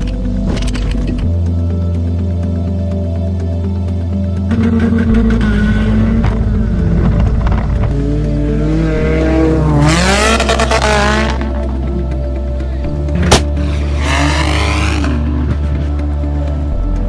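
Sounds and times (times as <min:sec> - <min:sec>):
background music with bass: 0:00.0 - 0:17.0
car engine revving: 0:03.8 - 0:16.8.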